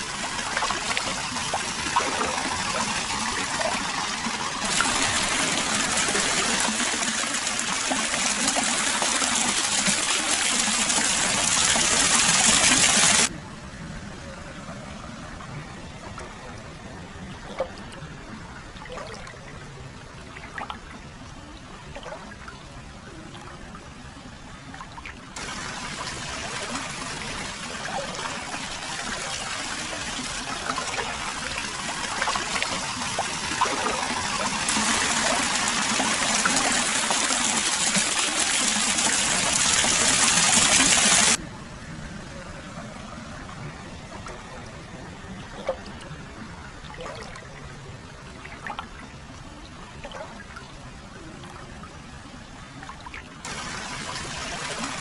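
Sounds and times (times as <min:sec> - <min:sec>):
water flowing and splashing: 0:00.0 - 0:55.0
faint water drips: 0:15.4 - 0:37.0, 0:43.4 - 0:53.6.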